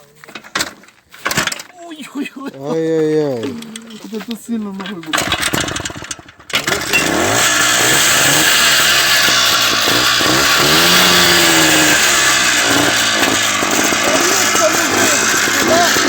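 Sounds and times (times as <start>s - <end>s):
motorcycle engine revving: 4.8s - 16.0s.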